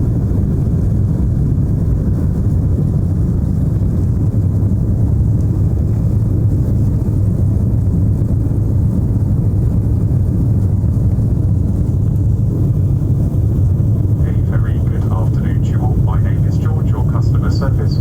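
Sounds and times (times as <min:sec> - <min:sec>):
jet engines roaring: 0:11.4 - 0:18.0.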